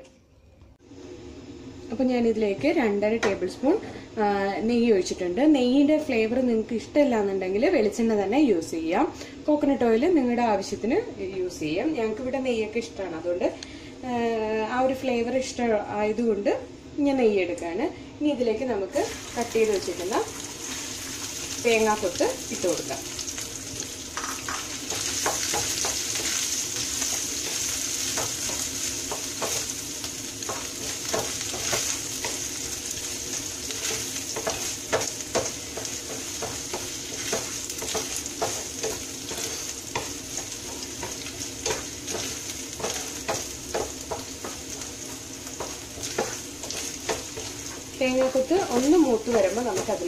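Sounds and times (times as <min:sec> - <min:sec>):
coconut sizzling in ghee: 0:18.9 - 0:50.0
wooden spatula scraping pan: 0:30.5 - 0:50.0.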